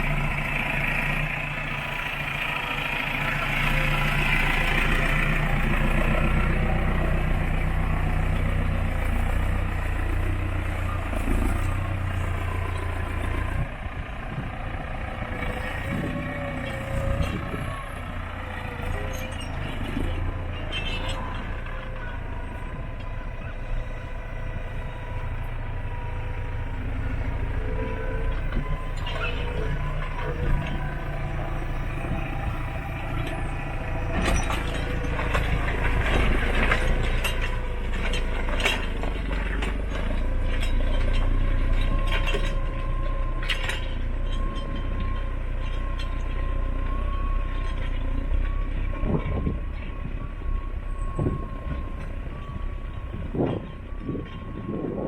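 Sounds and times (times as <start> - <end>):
tractor diesel engine under load: 0.0 - 55.0
plough clanking and rattling: 14.4 - 23.3, 24.4 - 50.0.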